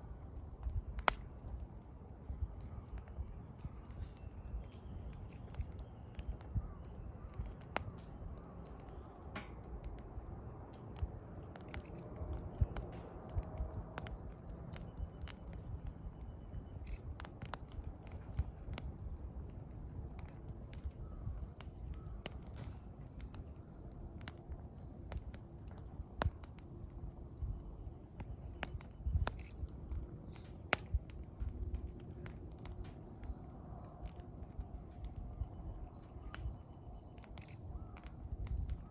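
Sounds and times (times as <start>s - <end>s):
wood fire crackling: 0.0s - 38.9s
bird calls: 31.4s - 38.9s.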